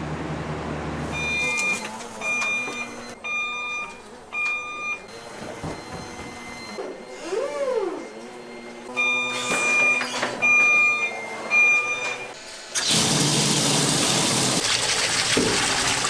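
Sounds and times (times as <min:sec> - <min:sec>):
short squeak: 0:09.2 - 0:10.4.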